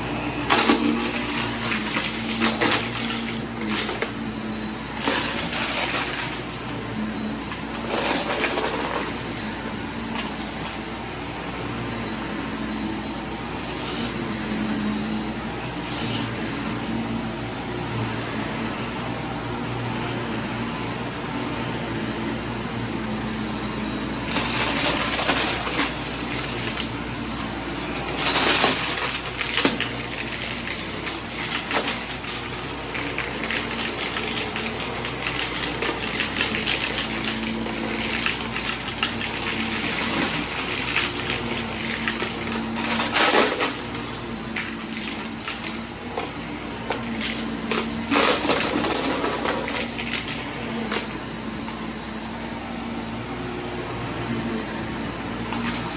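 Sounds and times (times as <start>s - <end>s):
vacuum cleaner running: 0.0s - 55.9s
debris rattling into vacuum: 0.3s - 11.6s, 24.2s - 51.2s, 55.5s - 55.9s.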